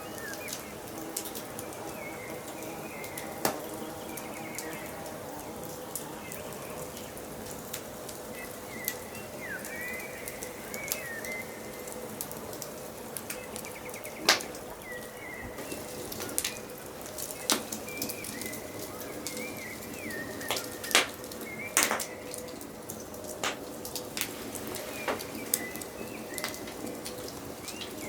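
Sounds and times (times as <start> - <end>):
birds chirping: 0.0 - 28.0
wood fire crackling: 0.0 - 28.0
sharp pops from fire: 15.6 - 18.7, 20.4 - 22.5, 23.3 - 28.0.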